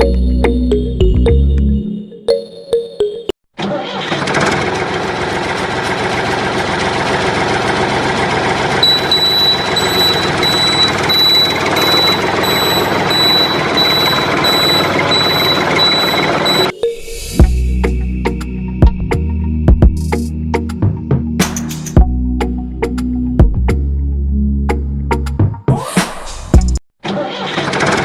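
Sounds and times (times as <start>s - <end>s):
small engine running: 3.6s - 16.6s.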